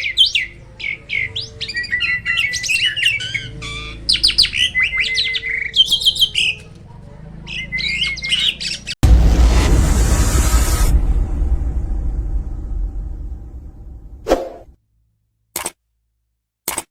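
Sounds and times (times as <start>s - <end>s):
starling singing: 0.0s - 9.0s.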